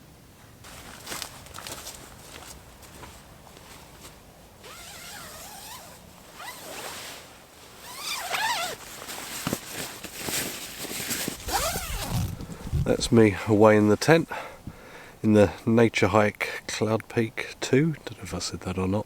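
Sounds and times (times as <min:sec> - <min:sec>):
zipper being pulled: 0:04.6 - 0:07.2, 0:07.8 - 0:08.8, 0:11.0 - 0:12.7.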